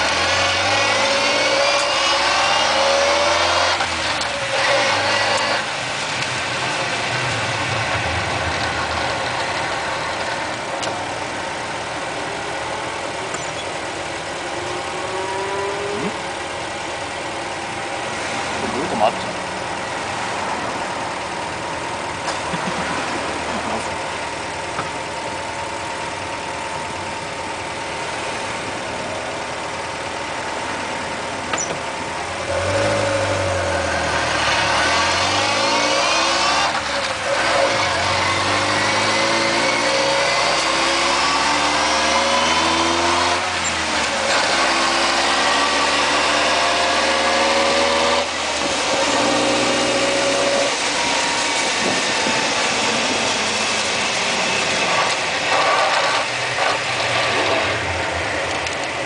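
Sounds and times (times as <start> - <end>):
transmission whine: 0.0 - 44.6
vehicle engine idling and accelerating: 0.0 - 59.0.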